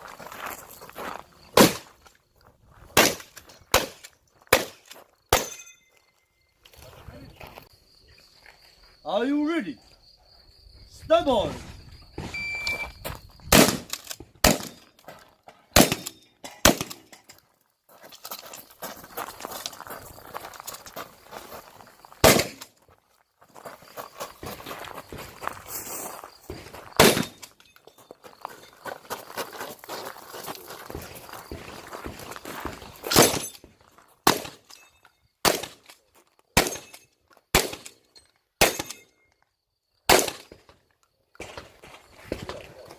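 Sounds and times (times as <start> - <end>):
shotgun shots: 3.0 - 5.6, 13.5 - 14.8, 15.7 - 17.1, 22.2 - 22.7, 27.0 - 27.4, 34.2 - 34.6, 35.4 - 35.8, 36.6 - 36.9, 37.5 - 38.0, 38.6 - 39.0, 40.1 - 40.6
shot timer beep: 12.3 - 13.0.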